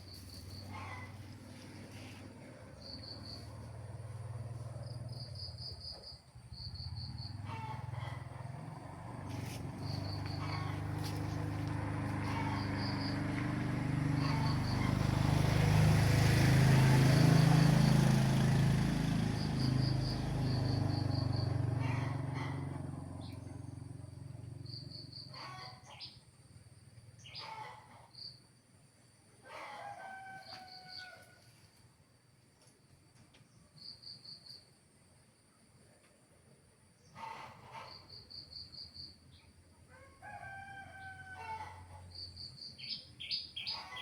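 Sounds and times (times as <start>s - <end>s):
crickets chirping: 0.0s - 27.4s, 32.9s - 36.0s, 37.9s - 39.5s, 41.8s - 44.0s.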